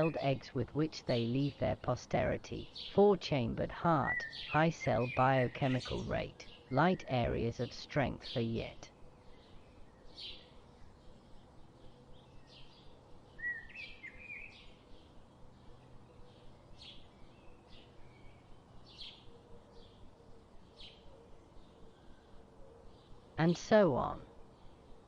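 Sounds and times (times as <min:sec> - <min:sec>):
lower warbled bird phrase: 0:00.0 - 0:08.9
birds chirping faintly: 0:00.0 - 0:25.0.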